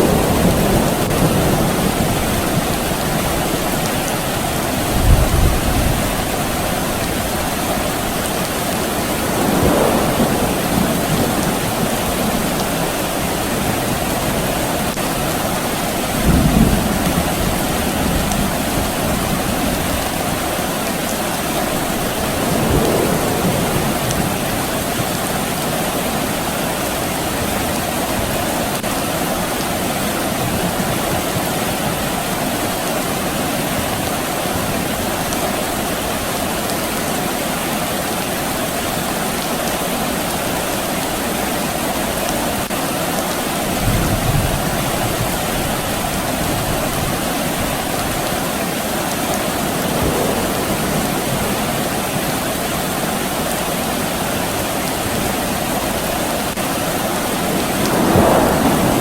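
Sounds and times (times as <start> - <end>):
distant thunder rumbles: 0.0 - 26.4, 43.6 - 59.0
steady rain falling: 0.0 - 59.0.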